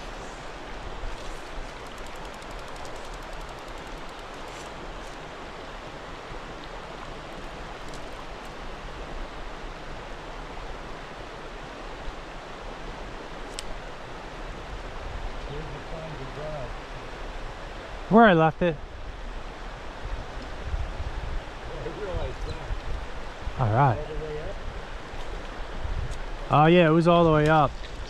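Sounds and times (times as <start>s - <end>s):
water rushing over rocks: 21.4s - 28.0s.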